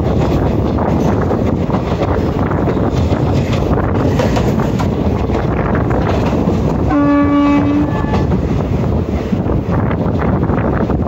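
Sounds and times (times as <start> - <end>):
train wheels rumbling on rails: 0.0 - 11.0
wind rushing over microphone: 0.0 - 11.0
train horn blast: 6.9 - 8.4.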